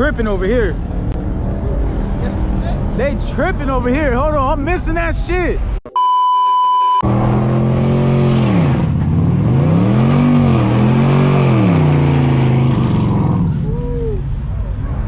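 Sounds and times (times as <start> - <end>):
car engine revving: 7.0 - 15.0.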